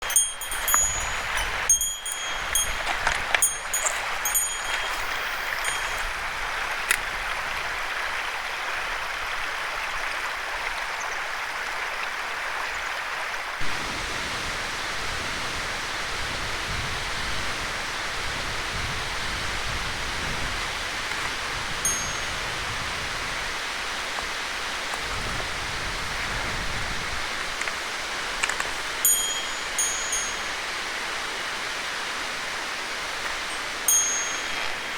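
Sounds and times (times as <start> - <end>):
small metal bell jingling: 0.0 - 6.5, 21.8 - 22.5, 29.0 - 30.8, 33.5 - 34.9
mountain stream rushing: 0.0 - 34.9.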